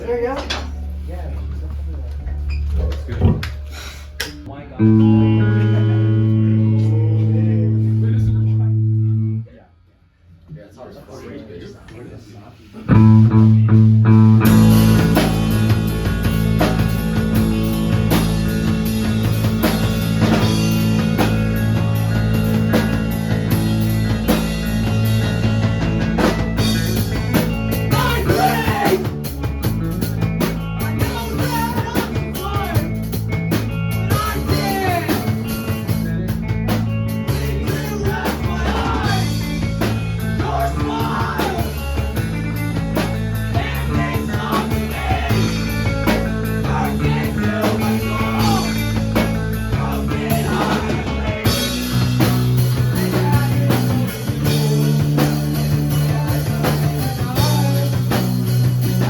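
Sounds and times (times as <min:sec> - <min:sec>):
drums: 0:00.0 - 0:09.1, 0:12.4 - 0:59.0
bass line: 0:00.0 - 0:09.6, 0:12.9 - 0:59.0
guitar: 0:00.0 - 0:09.6, 0:12.8 - 0:59.0
person singing: 0:27.9 - 0:29.1, 0:37.3 - 0:42.0, 0:43.5 - 0:58.4.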